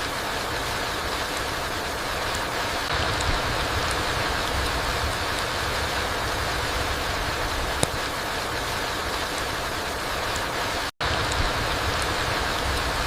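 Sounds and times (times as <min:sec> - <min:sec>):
rain falling through trees: 0:00.0 - 0:13.0.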